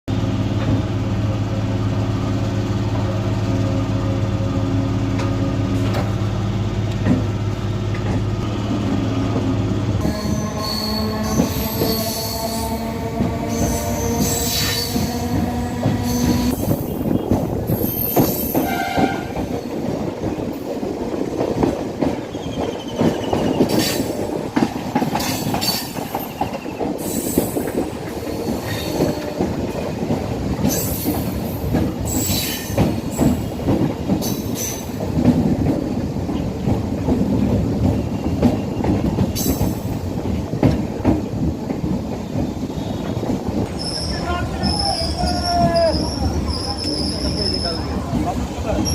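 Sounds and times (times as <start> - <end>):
train wheels rumbling on rails: 0.1 - 48.9
train clanks: 0.4 - 48.9
wheel squeals: 10.0 - 12.6, 22.2 - 24.1, 37.9 - 39.9, 42.2 - 48.2.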